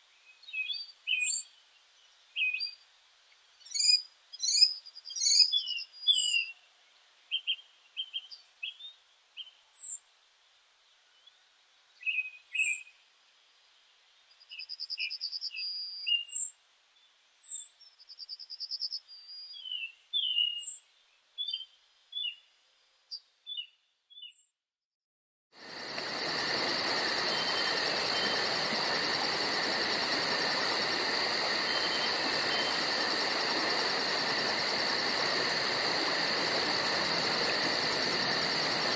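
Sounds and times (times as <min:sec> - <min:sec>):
songbirds chirping: 0:00.0 - 0:24.5.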